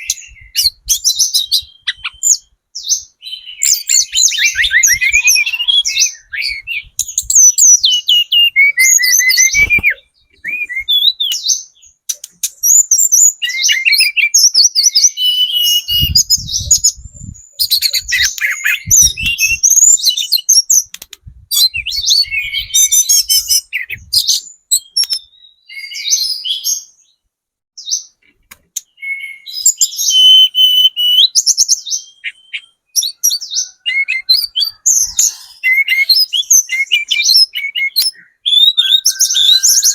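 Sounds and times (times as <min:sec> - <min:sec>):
bird chirps and trills: 0:00.0 - 0:27.2, 0:27.8 - 0:39.9
dull low thumps: 0:15.9 - 0:17.4, 0:18.8 - 0:19.6.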